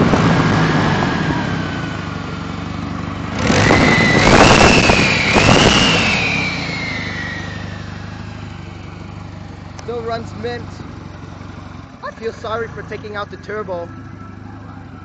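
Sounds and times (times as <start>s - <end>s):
car engine revving: 0.0s - 15.0s
turbo whistle: 3.6s - 7.8s.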